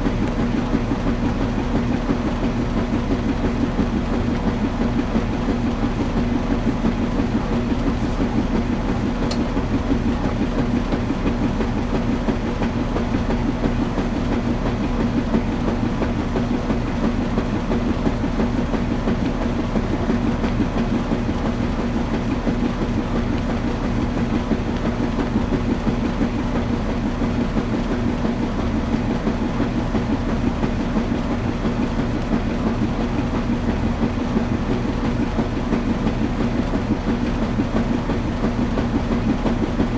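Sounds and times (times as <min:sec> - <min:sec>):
washing machine churning: 0:00.0 - 0:39.9.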